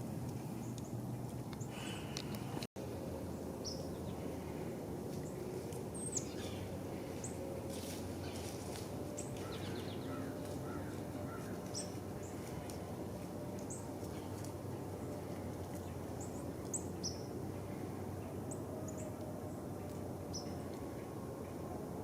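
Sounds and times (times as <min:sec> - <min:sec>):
small birds chirping: 0:05.2 - 0:12.9.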